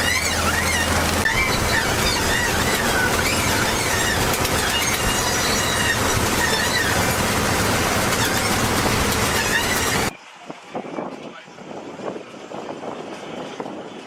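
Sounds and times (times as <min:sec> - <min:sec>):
high wavering squeals: 0:00.0 - 0:10.1
loud machinery noise: 0:00.0 - 0:10.2.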